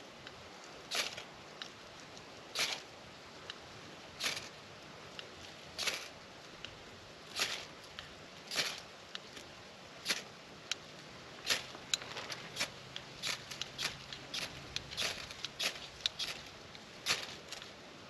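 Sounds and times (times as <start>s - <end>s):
knife scraping ferro rod: 4.2s - 4.5s, 11.5s - 17.7s.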